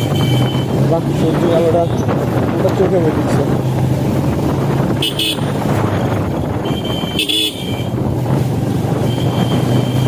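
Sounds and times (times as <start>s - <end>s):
motorcycle engine hum: 0.0s - 10.0s
road noise: 0.0s - 10.0s
vehicle horn: 5.0s - 5.6s, 6.6s - 8.0s.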